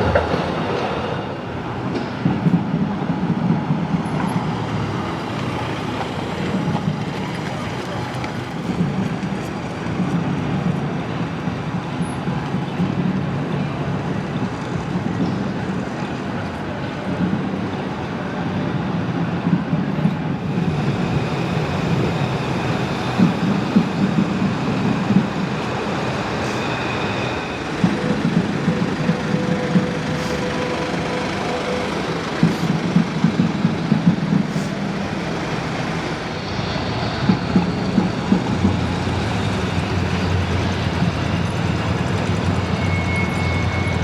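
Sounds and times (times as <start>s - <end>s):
brief high squeal: 42.2s - 44.0s.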